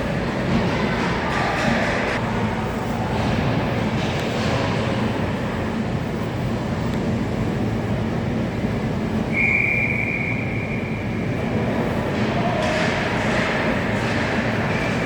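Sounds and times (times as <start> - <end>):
ice rink arena noise: 0.0 - 15.0
referee's whistle blast: 9.3 - 11.0.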